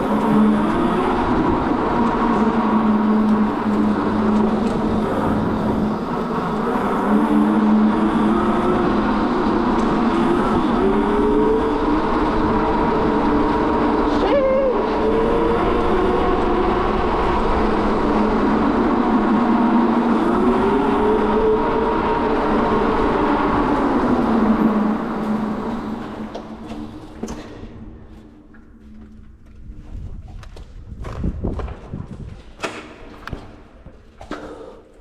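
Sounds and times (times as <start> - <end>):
wind noise: 29.4 - 33.9.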